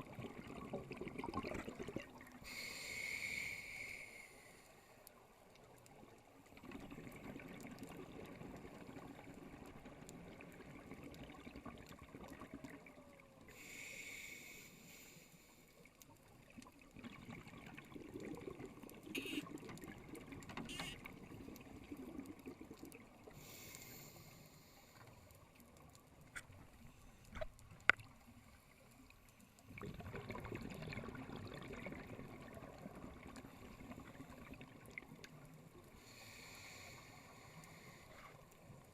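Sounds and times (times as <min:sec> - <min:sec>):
diver breathing through regulator: 0:02.4 - 0:04.8, 0:13.5 - 0:15.7, 0:36.0 - 0:38.4.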